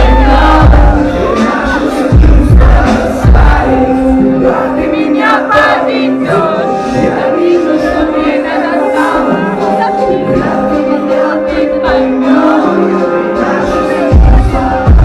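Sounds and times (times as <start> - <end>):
heavy bass beats: 0.0 - 5.4, 13.6 - 15.0
person singing pop song: 0.0 - 15.0.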